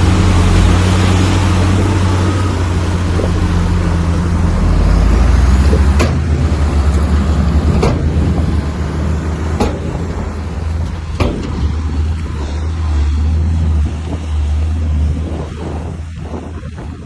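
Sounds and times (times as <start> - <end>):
bulldozer diesel engine: 0.0 - 17.0.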